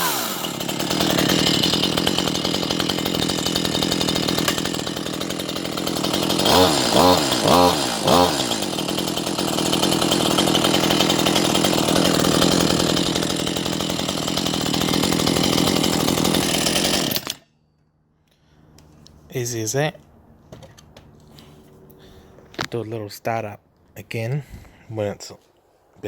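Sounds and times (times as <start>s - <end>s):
chainsaw revving: 0.0s - 17.4s
chainsaw idling: 0.0s - 17.5s.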